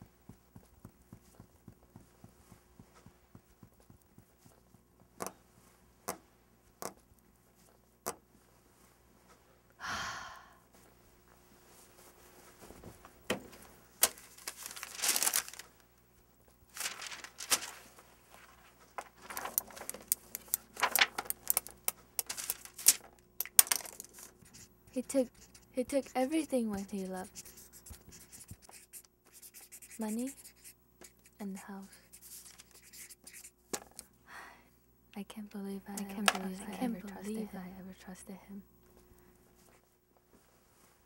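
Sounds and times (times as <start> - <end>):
crinkling and tearing: 14.0 - 15.8, 16.7 - 24.3.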